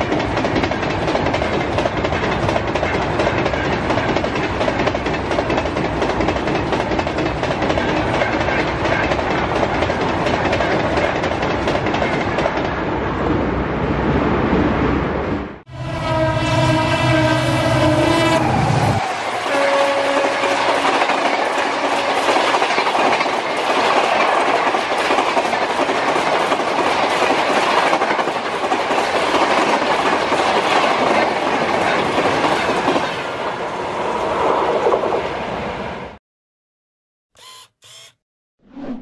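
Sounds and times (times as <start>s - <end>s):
train wheels clickety-clack: 0.0s - 12.8s, 20.0s - 33.2s
train rushing past: 0.0s - 36.2s
locomotive horn: 15.7s - 20.9s.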